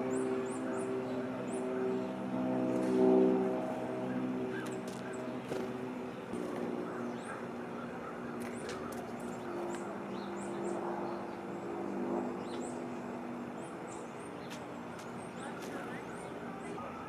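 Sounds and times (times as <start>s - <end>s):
small birds chirping: 4.5s - 17.0s.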